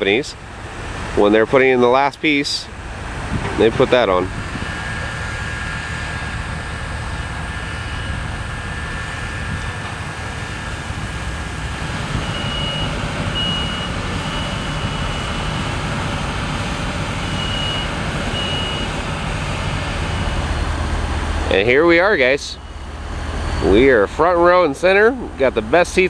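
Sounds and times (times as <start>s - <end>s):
low rumble of engines: 0.0s - 26.0s
reversing alarm beeping: 4.6s - 16.1s, 17.0s - 21.4s.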